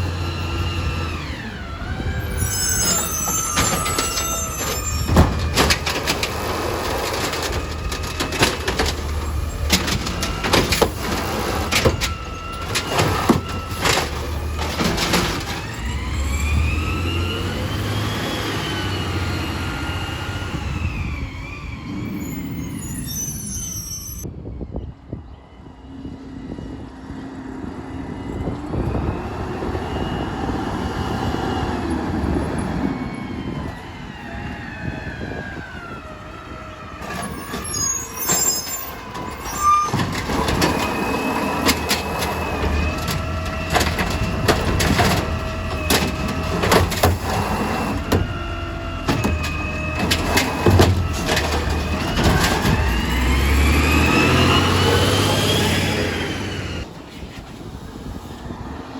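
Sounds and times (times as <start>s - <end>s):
garbage truck engine revving: 0.0s - 23.8s, 36.0s - 56.9s
clanks and bangs: 2.8s - 16.2s, 37.0s - 54.7s.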